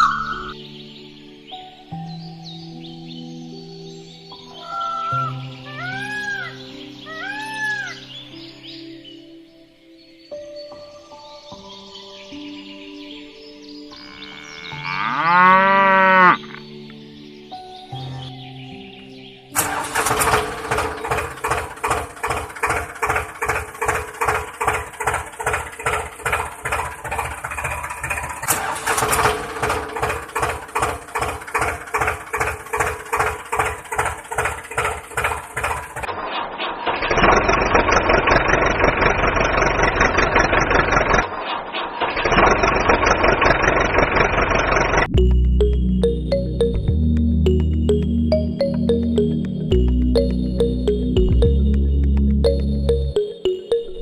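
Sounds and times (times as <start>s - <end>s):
tractor engine chugging: 19.6s - 36.1s, 37.5s - 41.2s, 42.3s - 46.7s, 47.5s - 53.3s.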